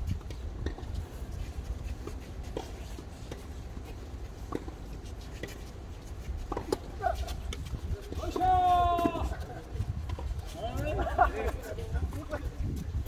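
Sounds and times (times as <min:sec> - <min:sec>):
wind rumble on microphone: 0:00.0 - 0:02.4, 0:06.2 - 0:13.0.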